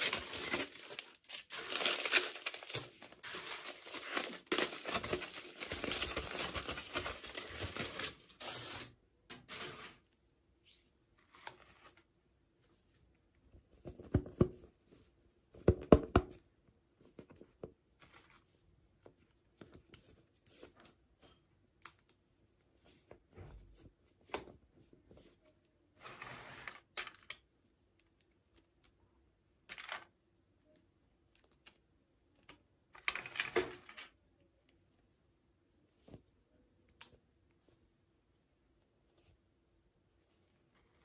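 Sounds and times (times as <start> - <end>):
packaging crinkling: 0.0 - 8.9.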